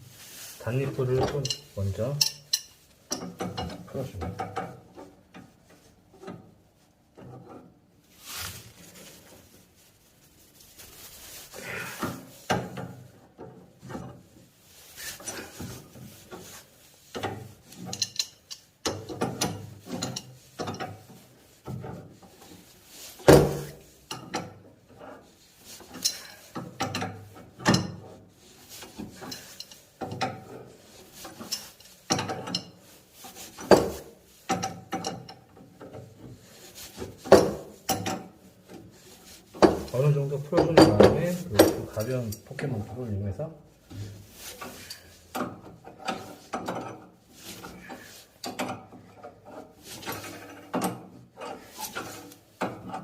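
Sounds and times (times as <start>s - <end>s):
wrench clicking and scraping on metal: 1.2s - 5.0s, 17.0s - 21.1s, 25.8s - 28.1s.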